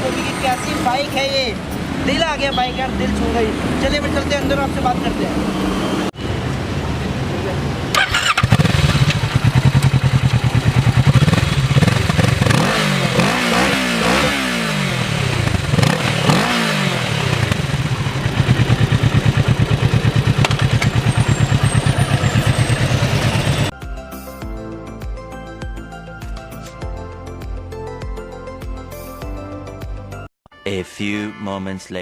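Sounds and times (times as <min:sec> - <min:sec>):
motorcycle engine idling and revving: 0:00.0 - 0:23.8.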